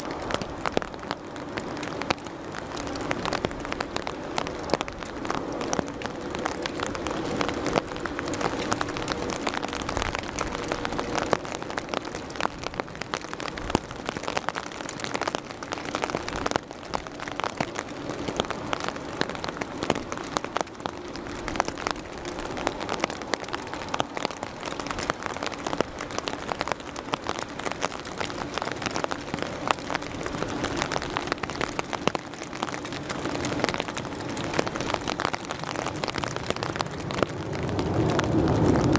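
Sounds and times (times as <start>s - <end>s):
rain drops pattering: 0.0s - 38.9s.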